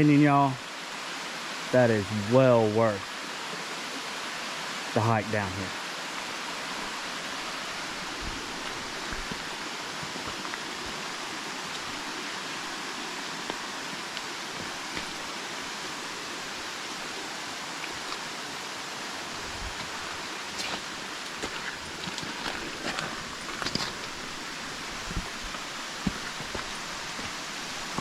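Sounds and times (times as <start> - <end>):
water pouring over rocks: 7.3 - 18.4.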